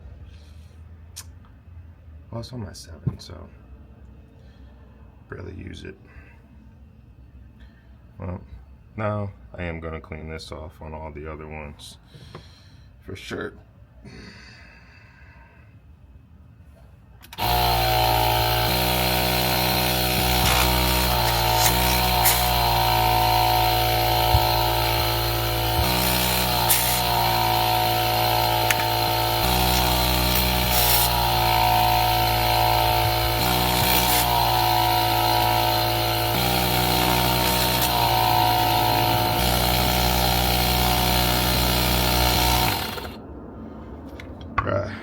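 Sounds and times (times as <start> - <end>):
air compressor droning: 17.3 - 43.2.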